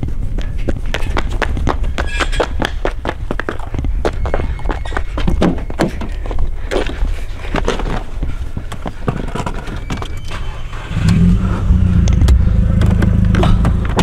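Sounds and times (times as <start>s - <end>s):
car engine starting and running: 10.3s - 14.0s.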